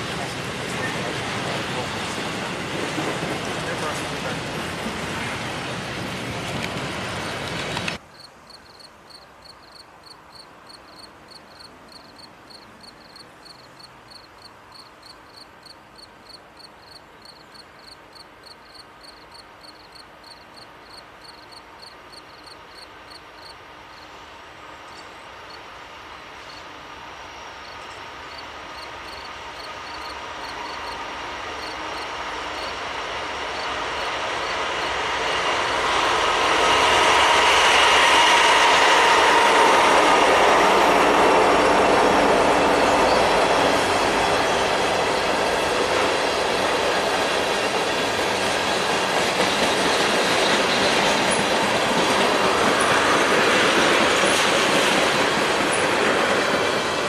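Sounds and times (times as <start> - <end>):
freight cars rolling on rails: 0.0 - 8.0, 29.3 - 57.0
approaching freight train rumble: 0.0 - 57.0
insects chirping: 8.0 - 25.7, 26.4 - 35.0.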